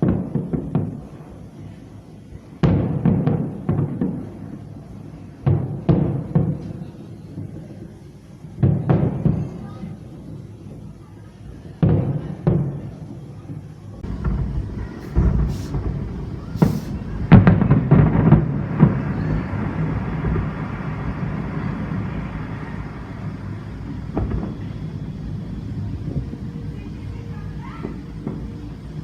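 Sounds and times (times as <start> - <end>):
fireworks booming: 0.0 - 1.3, 2.6 - 7.8, 8.5 - 10.4, 11.8 - 29.0
fireworks hissing streaks: 14.0 - 29.0
low echo rumble: 14.0 - 29.0.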